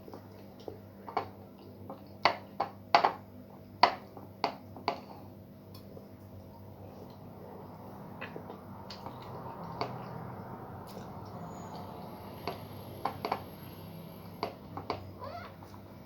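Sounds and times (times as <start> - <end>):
clicks and taps on a dish: 1.1 - 3.2, 3.8 - 5.2, 12.4 - 13.5, 14.4 - 15.1.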